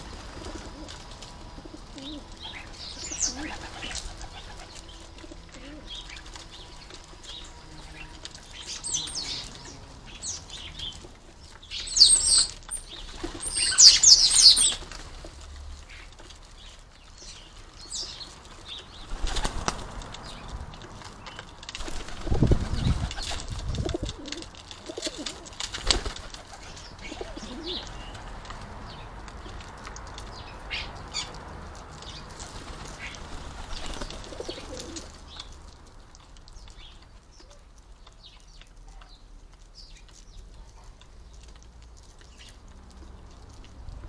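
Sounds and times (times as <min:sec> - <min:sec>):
wings flapping: 0:00.1 - 0:07.4, 0:13.0 - 0:15.3, 0:18.9 - 0:20.5, 0:21.1 - 0:28.3, 0:32.1 - 0:35.2
sparrow chirps: 0:02.0 - 0:05.0, 0:05.7 - 0:14.8.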